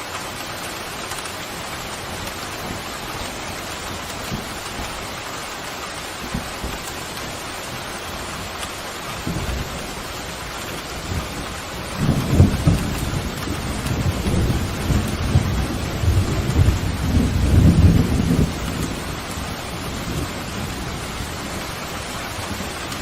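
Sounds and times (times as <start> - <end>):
heavy rain: 0.0 - 23.0
deep roll of thunder: 9.2 - 21.7.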